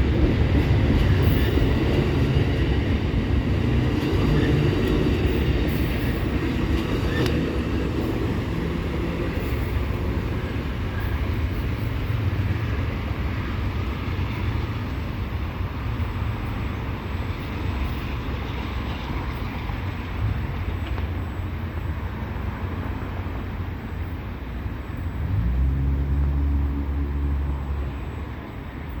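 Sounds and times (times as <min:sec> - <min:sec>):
train rumbling past: 0:00.0 - 0:29.0
loud low drone: 0:25.2 - 0:28.4.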